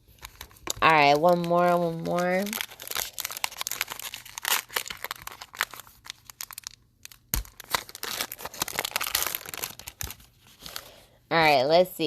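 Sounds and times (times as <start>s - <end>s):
foil wrapper tearing and crinkling: 0.1s - 11.0s.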